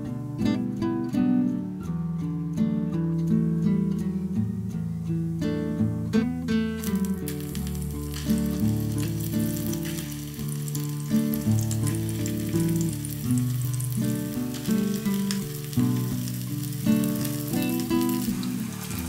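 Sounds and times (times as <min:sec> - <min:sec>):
background music: 0:06.2 - 0:19.0
food frying in oil: 0:06.8 - 0:19.0.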